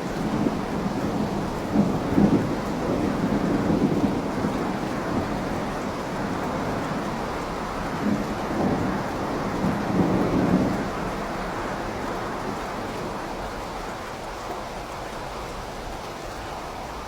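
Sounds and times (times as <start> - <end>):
steady rain: 0.0 - 17.0
thunder rumble: 0.1 - 13.2.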